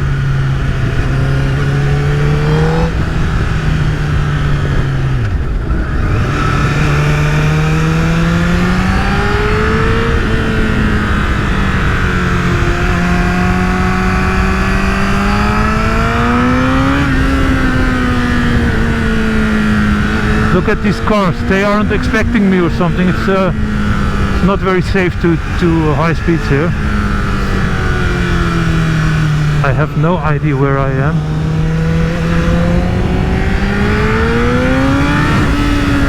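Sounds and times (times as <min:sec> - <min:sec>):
motorcycle engine accelerating: 0:00.0 - 0:36.0
wind rush: 0:31.1 - 0:36.0.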